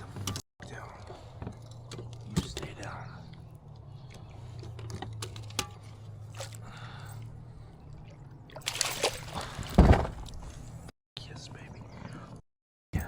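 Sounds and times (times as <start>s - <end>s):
fish splashing and thrashing in water: 5.8s - 6.9s, 8.0s - 10.5s
loud thump: 9.7s - 10.2s.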